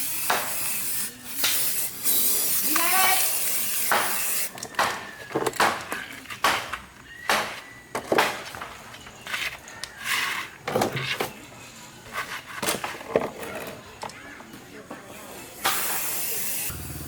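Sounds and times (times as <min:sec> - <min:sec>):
hard objects knocking and clicking: 0:03.9 - 0:11.4.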